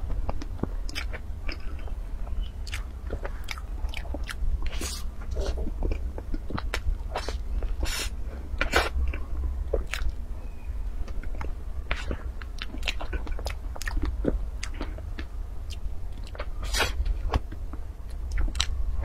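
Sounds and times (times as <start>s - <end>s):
steady low hum: 0.0s - 19.0s
wet chewing and mouth smacks: 11.1s - 18.8s.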